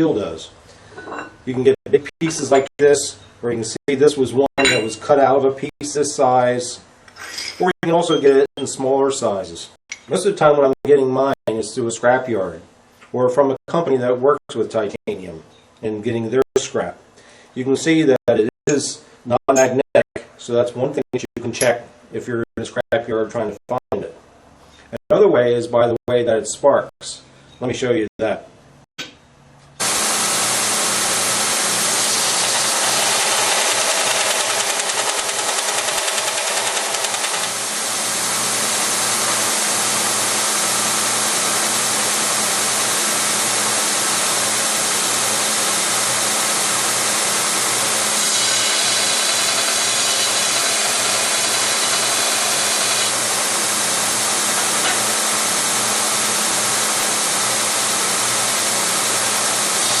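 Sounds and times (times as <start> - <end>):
grinder grinding metal: 29.8 - 39.6, 47.0 - 55.8.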